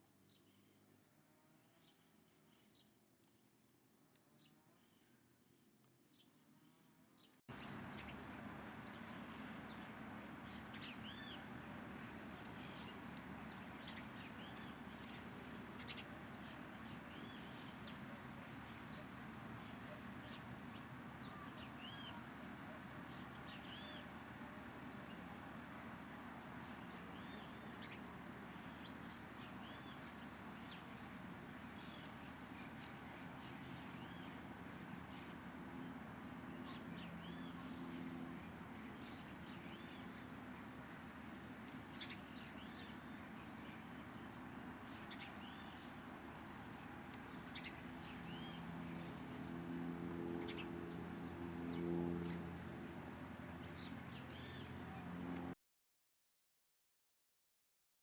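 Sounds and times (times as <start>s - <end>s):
small birds chirping: 7.5s - 49.4s.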